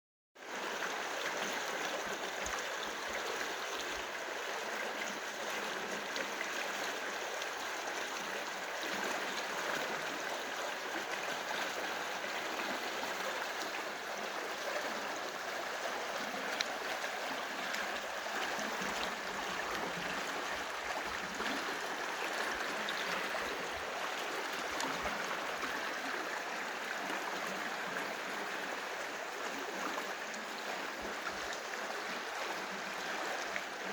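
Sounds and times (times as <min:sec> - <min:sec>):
stream of running water: 0:00.4 - 0:33.9.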